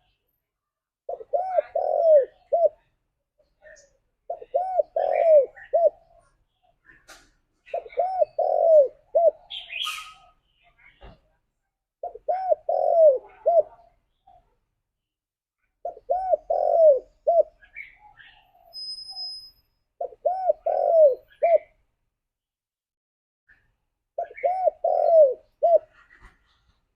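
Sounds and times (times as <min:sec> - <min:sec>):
dove cooing: 0:01.1 - 0:02.9, 0:03.6 - 0:06.4, 0:07.6 - 0:10.4, 0:12.0 - 0:14.4, 0:15.8 - 0:18.4, 0:20.0 - 0:21.7, 0:24.2 - 0:26.4
faint high chirps: 0:17.5 - 0:20.0.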